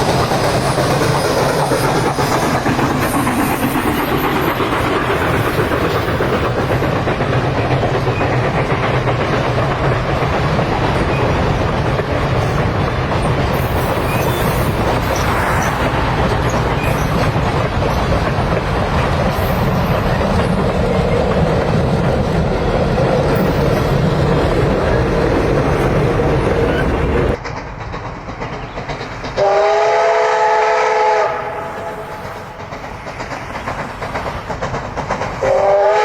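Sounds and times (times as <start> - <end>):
train wheels rumbling on track: 0.0 - 36.0.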